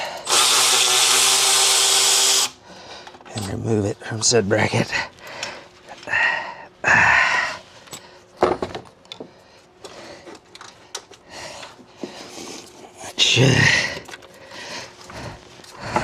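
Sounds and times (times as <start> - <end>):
metal tools clinking and rattling: 3.2 - 4.3.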